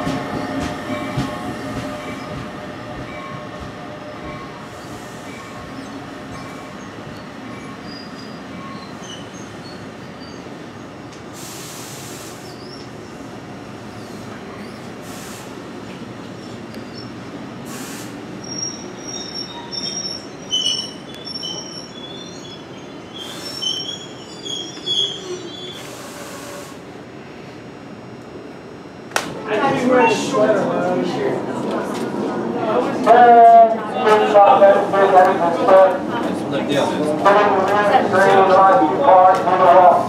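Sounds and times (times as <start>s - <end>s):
train wheels rumbling on rail: 0.0s - 27.0s, 30.4s - 40.0s
high-pitched wheel squeals: 18.4s - 25.8s.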